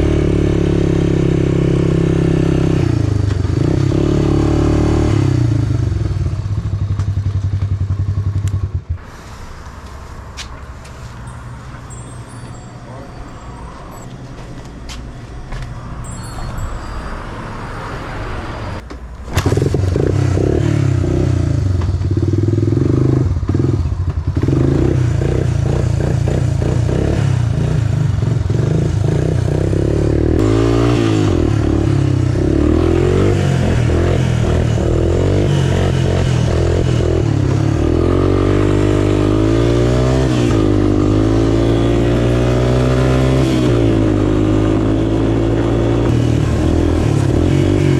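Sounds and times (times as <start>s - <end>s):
small off-road engine revving: 0.0s - 6.8s, 19.3s - 47.9s.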